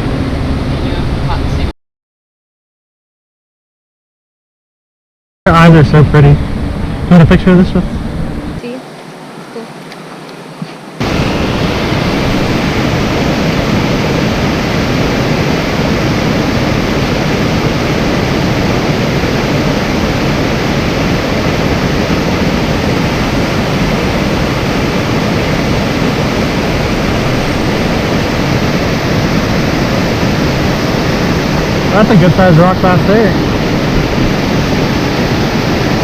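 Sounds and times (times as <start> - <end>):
creek water rushing: 7.8 - 36.0.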